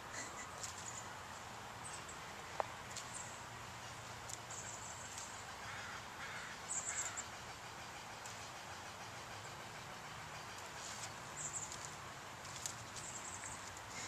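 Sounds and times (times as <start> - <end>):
bird harsh calls: 3.1 - 11.8.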